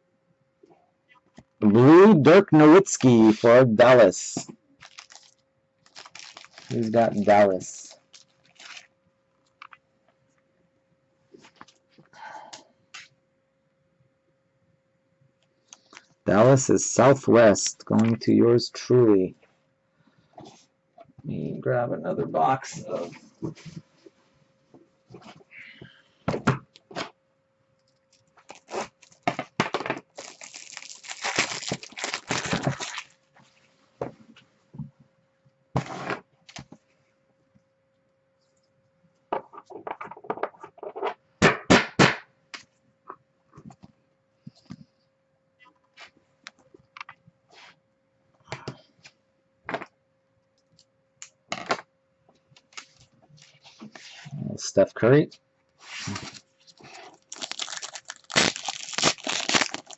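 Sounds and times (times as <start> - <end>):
card packaging crinkling: 4.8 - 8.9, 28.1 - 33.2, 56.0 - 59.9
plastic shrink wrap tearing: 4.8 - 8.9, 28.2 - 29.4, 30.0 - 33.2, 56.0 - 59.9.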